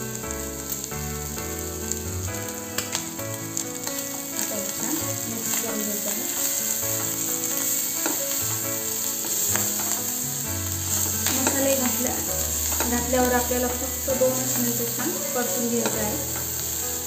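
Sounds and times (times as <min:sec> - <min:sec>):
corn frying in oil: 0:00.0 - 0:17.0
spatula scraping pan: 0:05.4 - 0:17.0.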